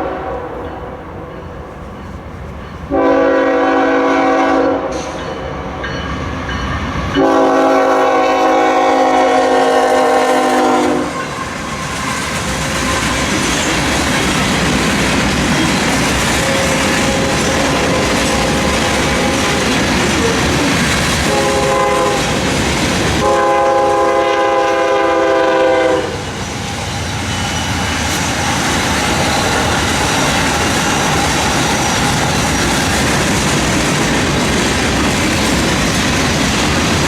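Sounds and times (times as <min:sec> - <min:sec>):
locomotive air horn blasts: 0:00.0 - 0:00.6, 0:02.9 - 0:05.1, 0:07.2 - 0:11.6, 0:16.4 - 0:19.8, 0:21.2 - 0:22.5, 0:23.2 - 0:26.3
train wheels rumbling and clattering: 0:00.0 - 0:37.0.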